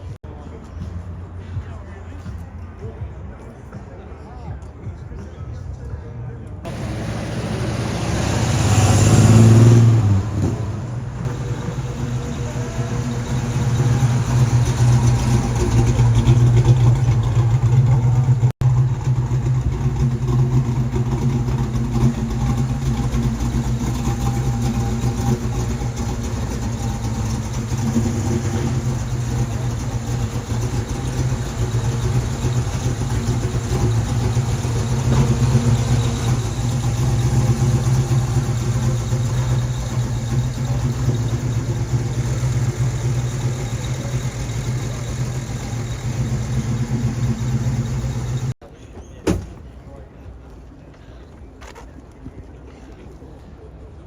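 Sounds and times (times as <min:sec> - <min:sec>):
car engine idling: 0:06.7 - 0:48.6.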